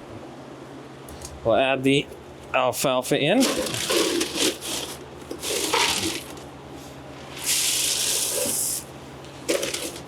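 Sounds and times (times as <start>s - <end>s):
dry feed pouring into tub: 7.4s - 8.8s.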